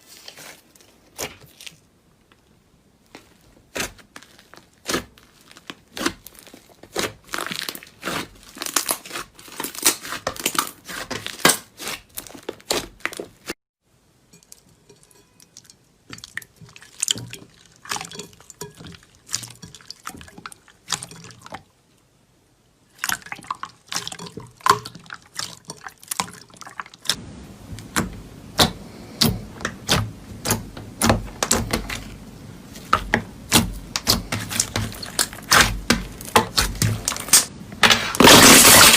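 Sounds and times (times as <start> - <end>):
slime squelching and popping: 3.2 - 13.5, 15.5 - 21.6, 22.9 - 27.2, 27.8 - 37.5.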